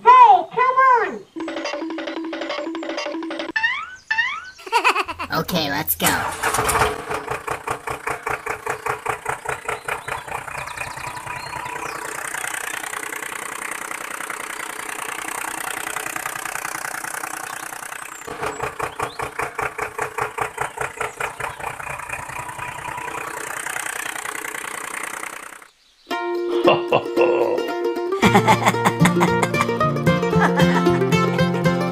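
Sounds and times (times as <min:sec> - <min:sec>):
tractor engine chugging: 0:05.2 - 0:25.8, 0:28.2 - 0:31.9.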